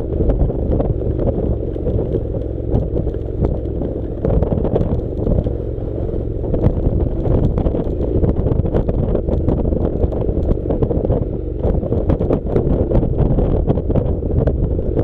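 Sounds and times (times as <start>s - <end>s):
motorcycle engine running: 0.0s - 15.0s
wind buffeting microphone: 0.0s - 15.0s
small clicks and rattles: 0.8s - 5.8s.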